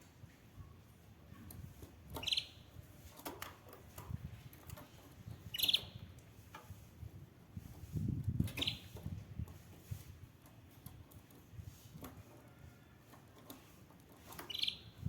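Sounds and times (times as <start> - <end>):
canary chirping: 2.2 - 2.7, 5.5 - 6.0, 8.5 - 8.9, 14.4 - 15.0.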